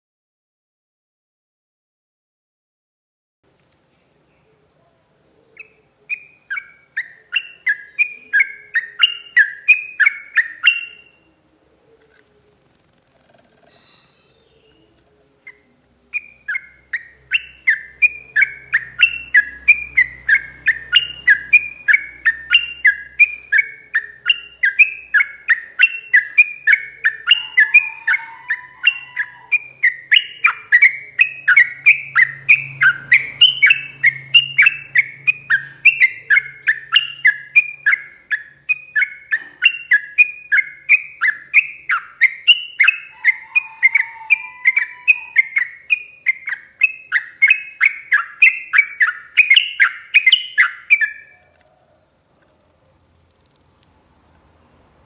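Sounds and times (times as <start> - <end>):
bird singing whistled notes: 5.6 - 11.3, 13.7 - 14.9, 16.2 - 51.4
low bird call: 13.5 - 53.1.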